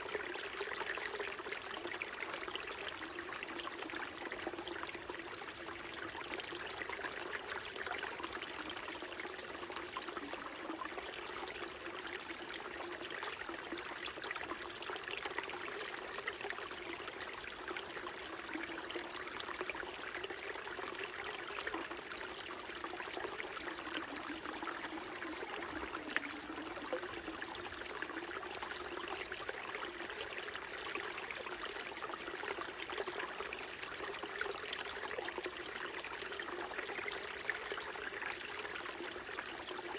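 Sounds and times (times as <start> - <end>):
stream babbling over rocks: 21.7 - 39.9.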